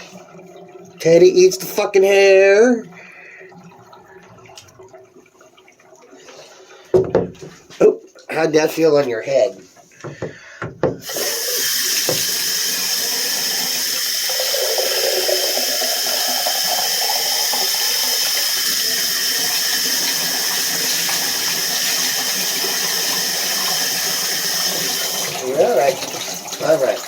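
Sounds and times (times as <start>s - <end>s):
water running from bathtub tap: 0.0s - 27.0s.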